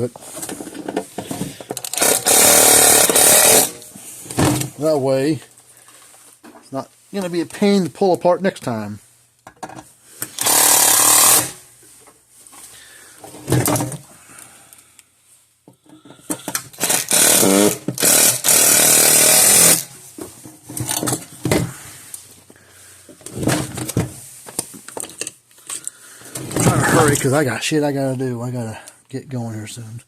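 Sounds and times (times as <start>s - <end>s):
cordless impact driver running: 1.8s - 3.8s, 10.3s - 11.6s, 16.8s - 19.9s.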